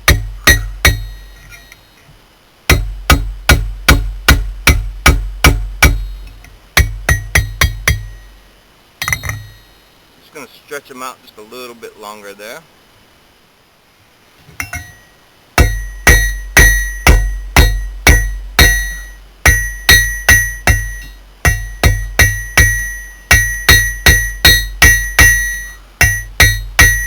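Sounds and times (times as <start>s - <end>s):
hammer striking steel on anvil: 0.0s - 1.8s, 2.7s - 8.3s, 9.0s - 9.7s, 15.6s - 27.0s.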